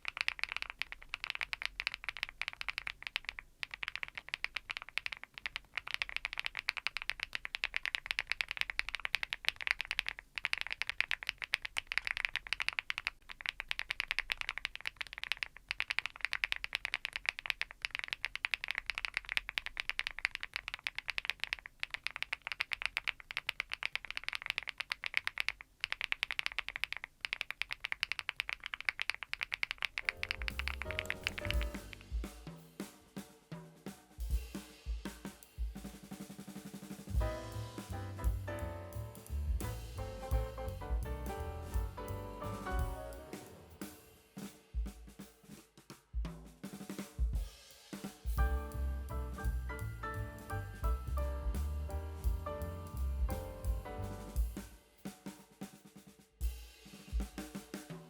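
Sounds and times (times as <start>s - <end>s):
mechanical keyboard typing: 0.0s - 32.0s.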